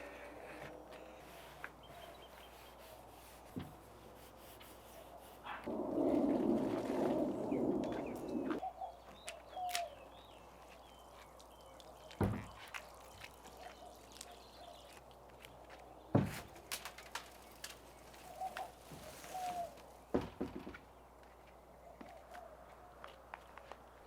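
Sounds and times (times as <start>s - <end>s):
small birds chirping: 0.0s - 3.7s, 4.7s - 16.2s, 17.2s - 20.0s.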